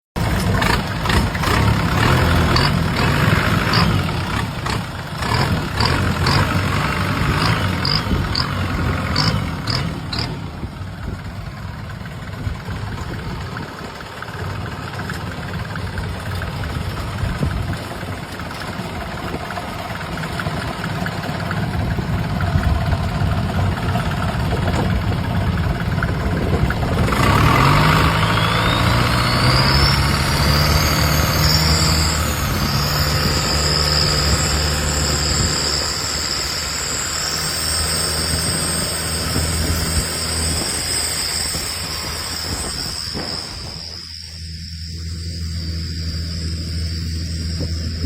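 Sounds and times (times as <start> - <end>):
boat engine: 0.0 - 48.0
thin high whine: 19.9 - 48.0.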